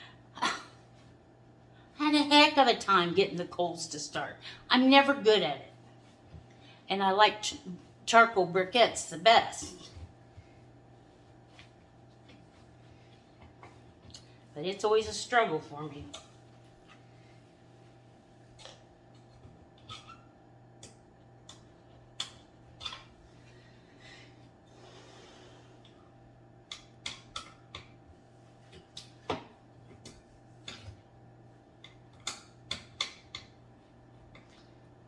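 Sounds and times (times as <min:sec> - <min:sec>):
steady low hum: 0:00.0 - 0:35.0
light clicks taps and rustles: 0:34.2 - 0:34.8.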